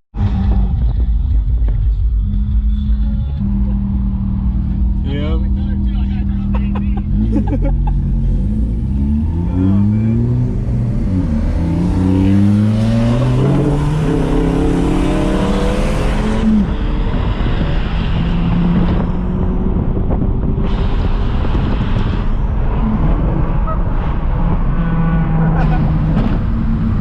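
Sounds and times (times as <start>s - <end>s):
car engine accelerating: 0.2s - 27.0s
road and wind rush: 0.2s - 27.0s.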